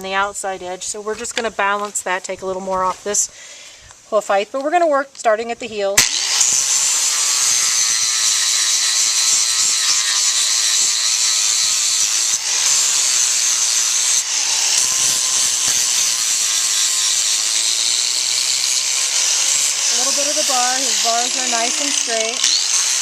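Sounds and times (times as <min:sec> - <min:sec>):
power grinder grinding hoof: 0:06.0 - 0:23.0.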